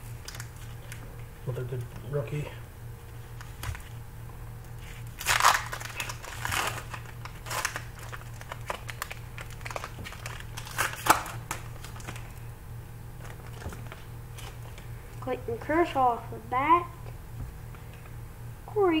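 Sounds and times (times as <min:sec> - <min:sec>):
foil wrapper crinkling and tearing: 0:00.2 - 0:01.0, 0:04.8 - 0:12.5, 0:13.2 - 0:14.9.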